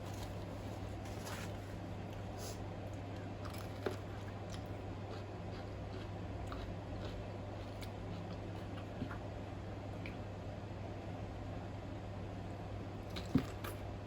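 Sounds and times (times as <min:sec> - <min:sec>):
steady low hum: 0:00.0 - 0:14.0
person chewing noodles: 0:03.4 - 0:09.4.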